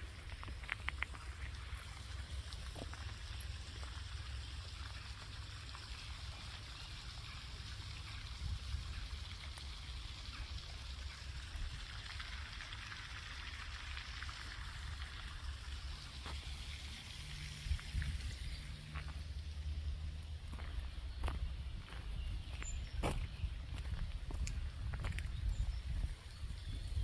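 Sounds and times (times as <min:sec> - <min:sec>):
outdoor hiss: 0:00.0 - 0:20.7
wind rumbling on microphone: 0:17.4 - 0:19.2, 0:20.5 - 0:27.0.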